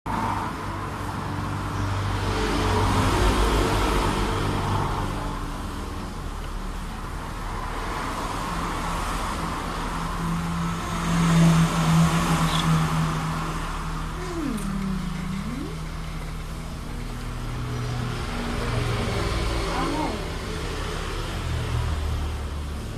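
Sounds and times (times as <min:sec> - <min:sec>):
road noise: 0:00.1 - 0:22.9
vehicle engine running: 0:13.4 - 0:22.9.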